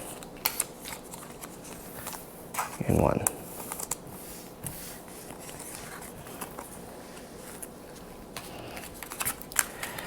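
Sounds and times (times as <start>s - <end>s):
trading cards and sleeves handled: 0.0s - 10.0s
crisp clicks and crinkles: 8.7s - 10.0s.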